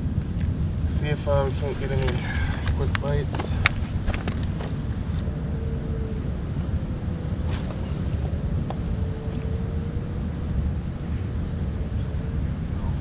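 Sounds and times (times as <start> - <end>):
faint steady hum: 0.0 - 13.0
high insect drone: 0.0 - 13.0
low wind-like rumble: 0.0 - 13.0
brief swish: 7.5 - 8.4.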